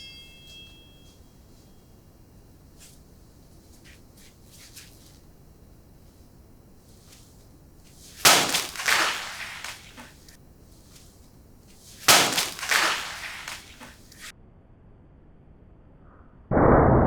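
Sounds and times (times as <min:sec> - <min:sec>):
crunching and crackling: 0:01.0 - 0:14.3.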